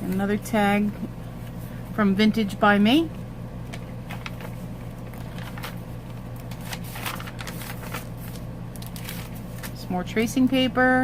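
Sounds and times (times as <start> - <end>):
steady low hum: 0.0 - 11.0
paper pages rustling: 3.7 - 9.8.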